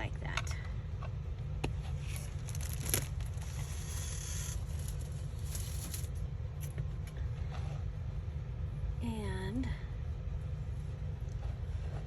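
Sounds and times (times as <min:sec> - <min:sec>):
steady low hum: 0:00.0 - 0:12.0
rustling paper: 0:01.9 - 0:06.2.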